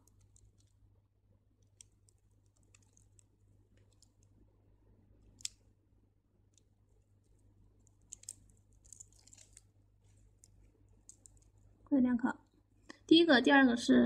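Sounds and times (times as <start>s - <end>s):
beads clicking together: 0.0s - 0.8s, 1.6s - 4.4s, 5.2s - 5.7s, 6.5s - 11.7s.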